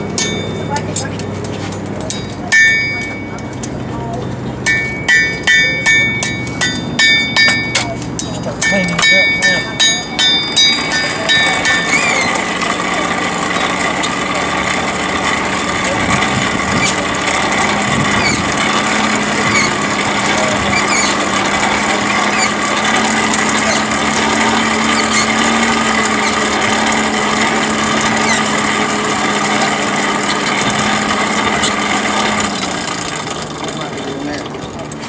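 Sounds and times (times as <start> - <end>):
electric grinder running: 8.9 - 33.9.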